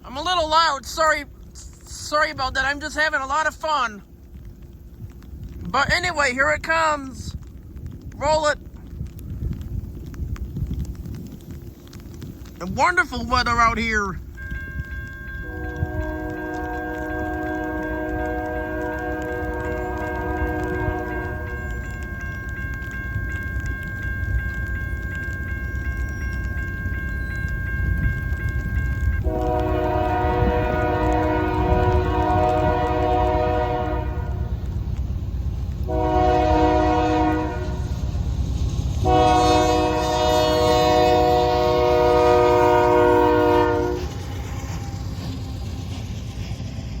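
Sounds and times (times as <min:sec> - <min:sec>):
low rumble of train: 0:00.0 - 0:47.0
locomotive air horn blasts: 0:14.4 - 0:21.7, 0:29.2 - 0:34.6, 0:35.9 - 0:38.0, 0:39.0 - 0:44.2.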